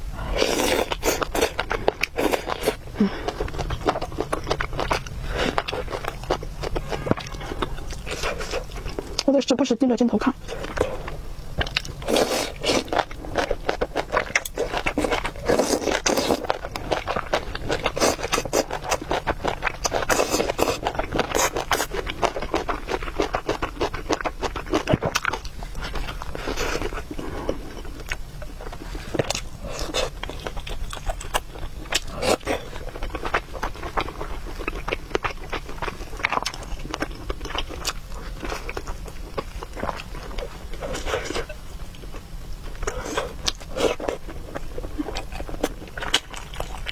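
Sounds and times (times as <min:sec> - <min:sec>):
chewing and slurping noodles: 0:00.2 - 0:09.3, 0:10.3 - 0:46.9.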